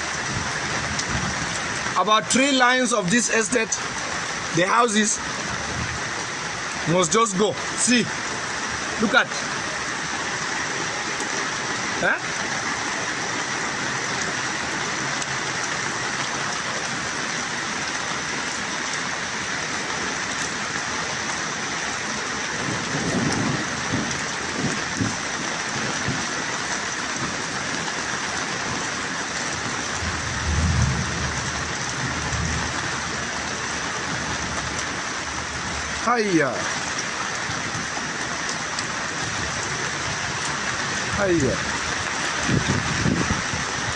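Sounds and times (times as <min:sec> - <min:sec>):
heavy rain falling: 0:00.0 - 0:43.9
low rumbles: 0:29.5 - 0:34.8.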